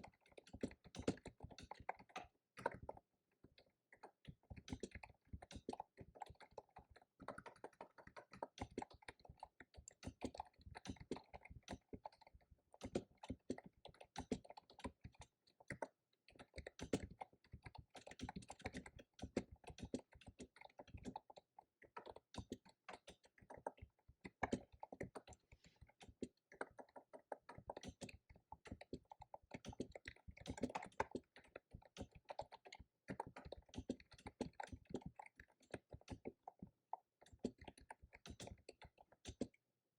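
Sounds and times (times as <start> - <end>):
fast typing on keyboard: 0.0 - 39.6.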